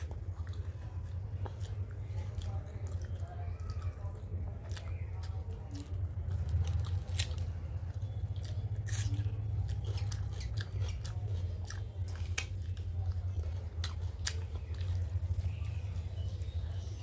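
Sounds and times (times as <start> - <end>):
close chewing: 0.0 - 17.0
steady low hum: 0.0 - 17.0.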